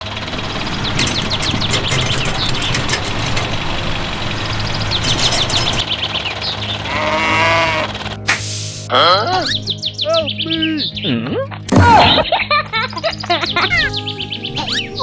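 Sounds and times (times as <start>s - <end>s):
birds chirping: 0.0s - 8.2s, 8.9s - 15.0s
steady low hum: 0.0s - 8.9s
wavering animal call: 6.8s - 8.0s.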